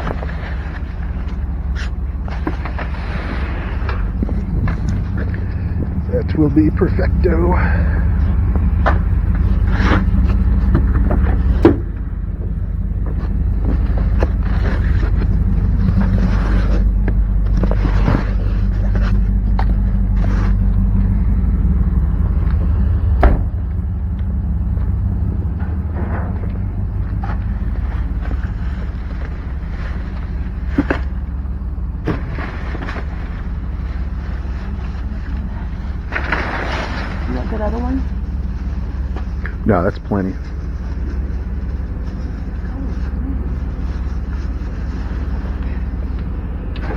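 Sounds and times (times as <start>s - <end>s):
low engine hum: 0.0s - 46.9s
low mechanical rumble: 0.0s - 46.9s
sharp knocks: 23.2s - 23.7s.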